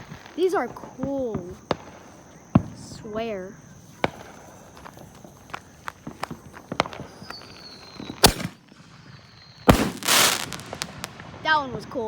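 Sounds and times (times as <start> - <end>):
small firework crackling pops: 0.0 - 12.0
loud firework bang: 8.0 - 8.6, 9.6 - 11.6.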